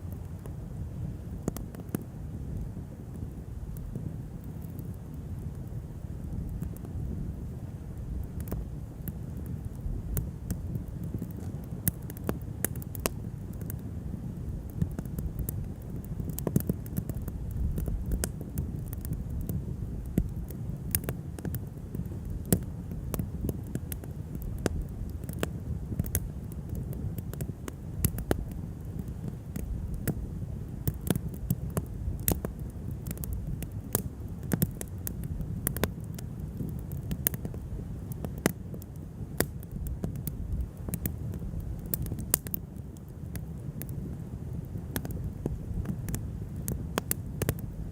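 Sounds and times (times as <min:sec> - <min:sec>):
burning wood cracking and popping: 0:00.0 - 0:47.9.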